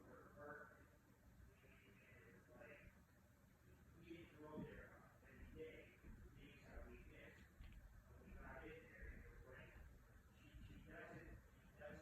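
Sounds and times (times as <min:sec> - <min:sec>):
faint voice: 0:00.0 - 0:03.0, 0:08.1 - 0:12.0.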